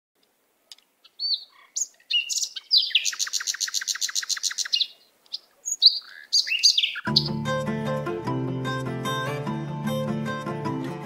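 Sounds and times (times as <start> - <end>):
fast bird trill: 1.0 - 7.4
bird chirps and whistles: 1.1 - 4.9, 5.7 - 7.3.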